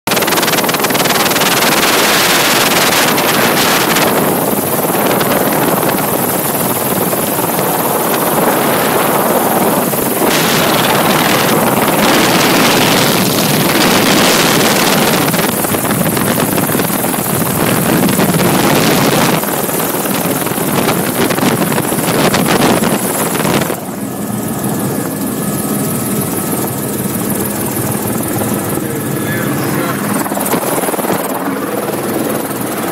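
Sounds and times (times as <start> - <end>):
wind on microphone: 0.1 - 24.0
helicopter rotor and turbine: 0.1 - 32.9
steady high whine: 0.2 - 32.9.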